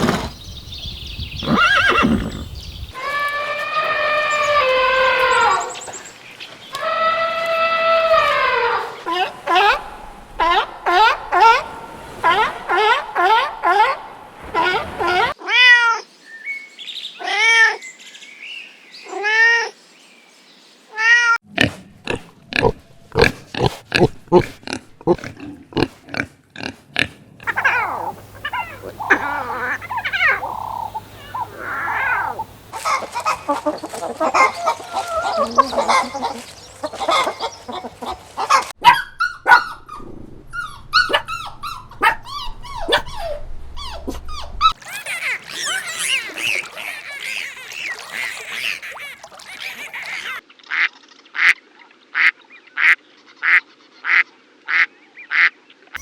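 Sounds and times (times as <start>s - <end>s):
pitched arching animal calls: 1.4s - 5.9s, 6.8s - 15.4s, 21.6s - 51.6s
rough noisy animal calls: 27.4s - 50.4s.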